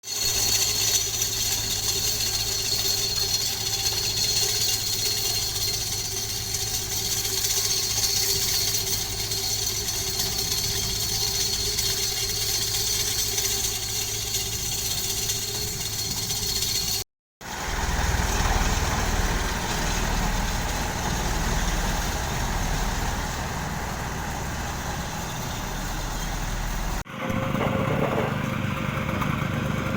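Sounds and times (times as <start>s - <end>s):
construction machinery engine running: 17.4s - 29.9s.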